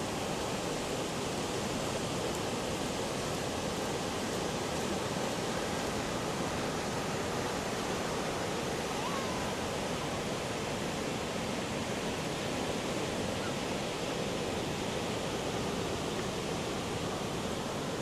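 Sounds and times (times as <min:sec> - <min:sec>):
ocean surf breaking on beach: 0:00.0 - 0:18.0.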